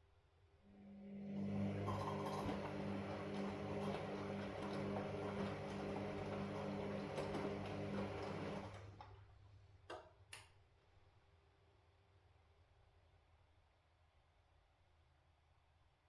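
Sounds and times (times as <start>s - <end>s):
washing machine humming: 0.8s - 9.4s.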